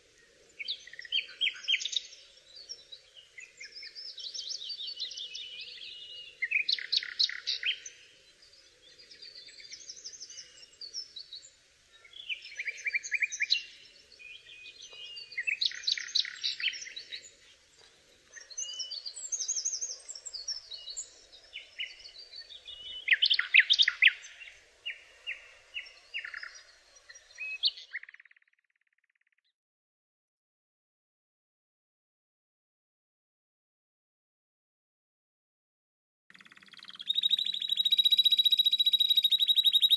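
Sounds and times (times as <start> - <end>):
songbird trilling: 4.6 - 8.0, 18.4 - 26.7, 36.3 - 39.9.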